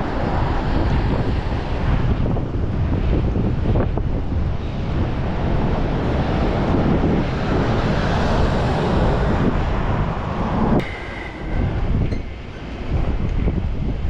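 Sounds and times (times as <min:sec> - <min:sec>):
wind buffeting microphone: 0:00.0 - 0:14.0
sea surf: 0:04.3 - 0:14.0.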